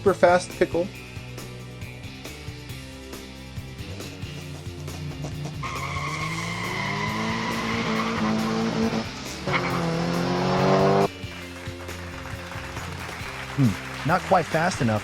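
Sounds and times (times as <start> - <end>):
background music: 0.0 - 15.0
race car engine revving: 3.9 - 11.2
tyre squeal: 5.6 - 10.2.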